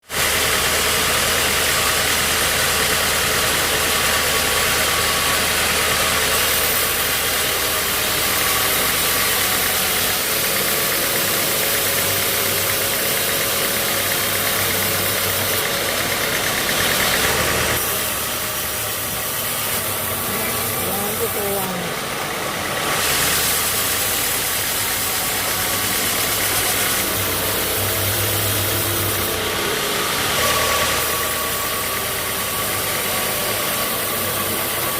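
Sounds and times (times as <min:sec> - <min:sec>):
sawmill machinery engine: 0:00.0 - 0:34.9.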